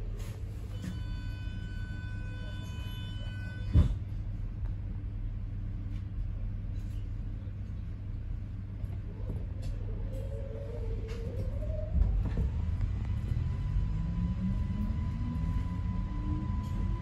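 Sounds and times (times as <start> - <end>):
train carriage rumble: 0.0 - 17.0
high whine: 12.0 - 17.0.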